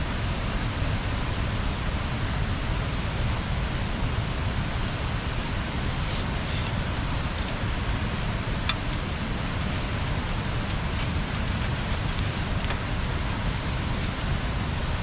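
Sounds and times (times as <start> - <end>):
bonfire burning: 4.8 - 15.0
fire crackling and popping: 5.7 - 15.0.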